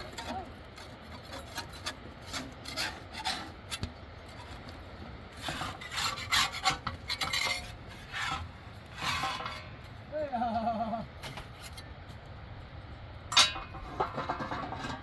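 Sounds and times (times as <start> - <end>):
scraping strokes: 0.0 - 9.9.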